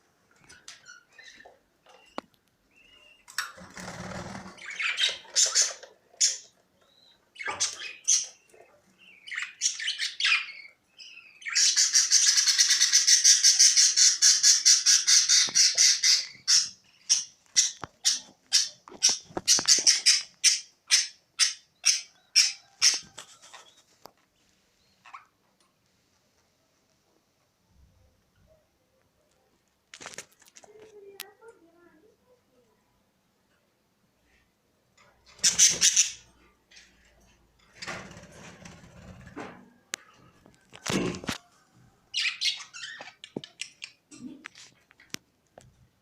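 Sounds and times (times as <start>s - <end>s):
budgerigars chattering and squawking: 4.0s - 6.5s, 11.4s - 23.7s, 35.3s - 36.3s.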